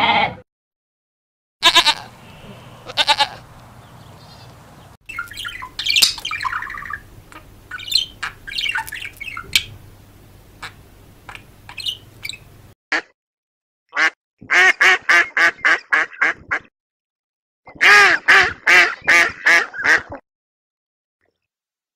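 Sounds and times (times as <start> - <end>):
goat bleating: 0.0 - 0.4, 1.6 - 3.6
budgerigars chirping and squawking: 1.6 - 9.8, 10.6 - 12.5.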